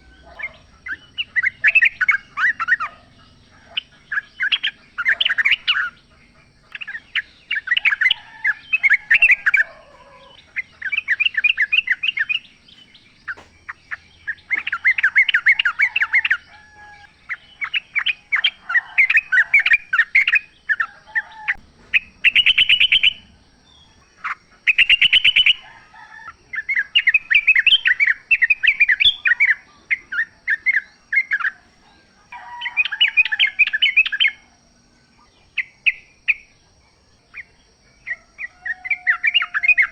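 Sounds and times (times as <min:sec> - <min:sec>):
bulbuls singing: 0:00.0 - 0:39.9
bird rattling trills: 0:00.1 - 0:23.3.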